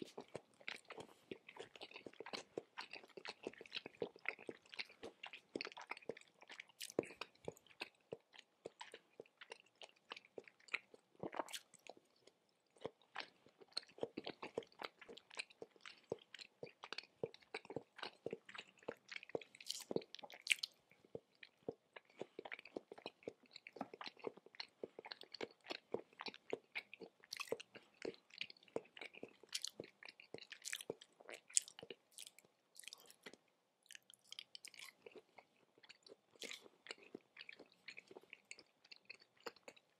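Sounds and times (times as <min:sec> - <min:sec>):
wet chewing sounds: 0:00.0 - 0:39.9.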